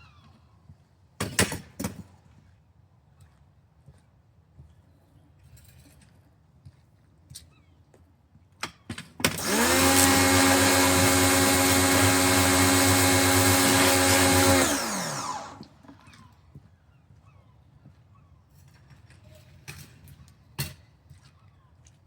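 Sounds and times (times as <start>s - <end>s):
electric pressure washer running: 9.3s - 15.8s.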